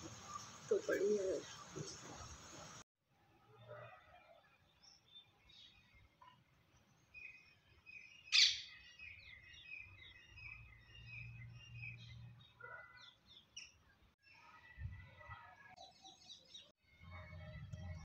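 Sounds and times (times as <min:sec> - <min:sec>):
small birds chirping: 0:00.0 - 0:02.8, 0:04.8 - 0:14.0.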